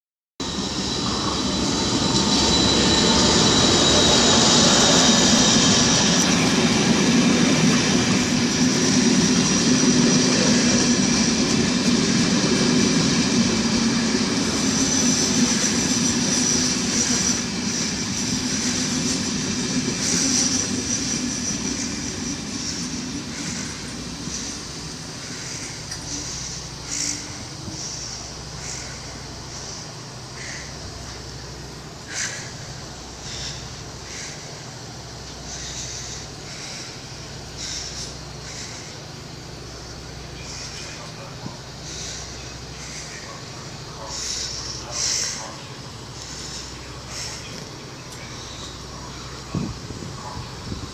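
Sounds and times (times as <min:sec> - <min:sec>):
high-pitched whining tones: 0:00.4 - 0:50.9
train coaches rumbling on rails: 0:00.4 - 0:50.9.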